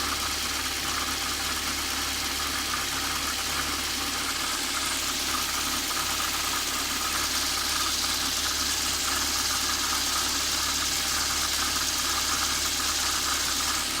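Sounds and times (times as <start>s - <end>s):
car engine idling: 0.0s - 14.0s
whirring hiss: 4.2s - 14.0s.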